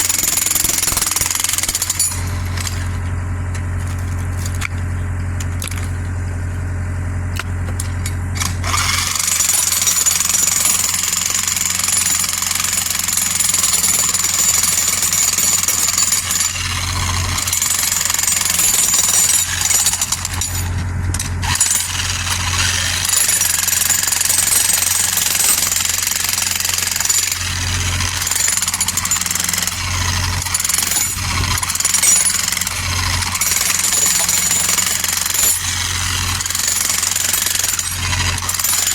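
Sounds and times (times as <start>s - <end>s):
excavator engine running: 0.0s - 10.4s, 15.6s - 38.9s.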